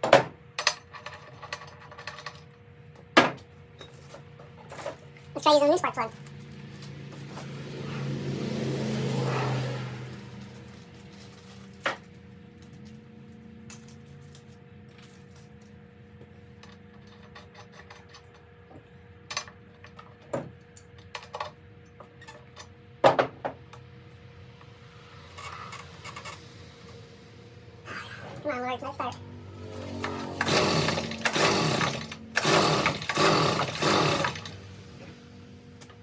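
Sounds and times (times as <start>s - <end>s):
tools and metal parts clinking: 0.0s - 5.4s, 10.4s - 15.8s, 16.6s - 18.6s, 19.2s - 22.8s, 25.3s - 26.6s.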